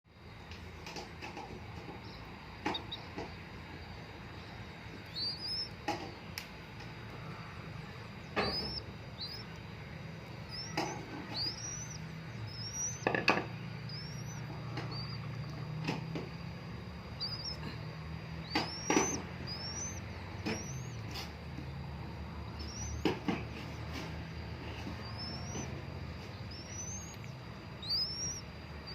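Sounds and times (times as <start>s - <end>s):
steady low hum: 0.1s - 28.9s
bird chirping: 1.4s - 28.9s
sharp taps: 2.6s - 3.4s, 18.4s - 21.7s.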